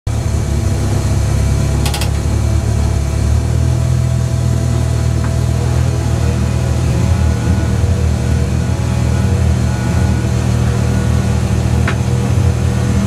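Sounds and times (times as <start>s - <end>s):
car engine idling: 0.1s - 13.0s
clicks: 1.8s - 2.3s.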